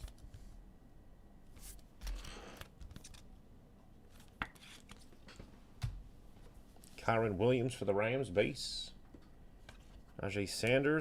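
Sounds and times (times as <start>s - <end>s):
cards rustling: 4.1s - 5.2s.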